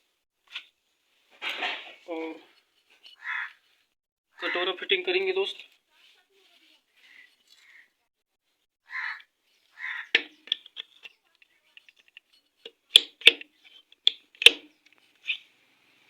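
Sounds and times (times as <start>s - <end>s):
metal engine parts clinking: 10.2s - 14.7s.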